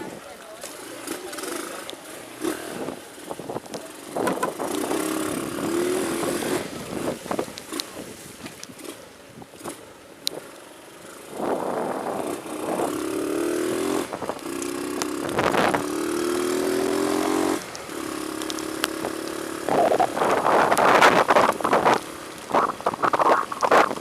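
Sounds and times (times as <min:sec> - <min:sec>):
small engine accelerating: 0:04.6 - 0:07.2, 0:11.3 - 0:23.3.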